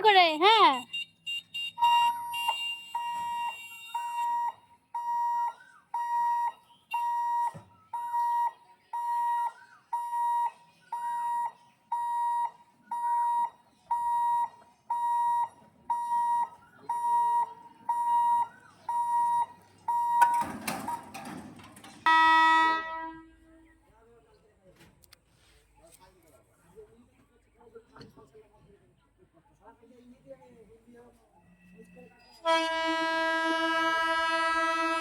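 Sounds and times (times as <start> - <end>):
level crossing alarm beeping: 0.0 - 23.1.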